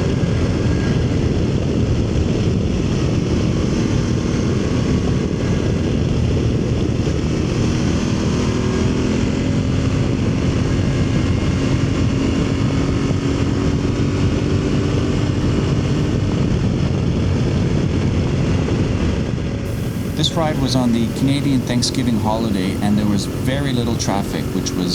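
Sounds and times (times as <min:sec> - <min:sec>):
wind and road rush: 0:00.0 - 0:24.9
motorcycle engine drone: 0:19.7 - 0:24.9.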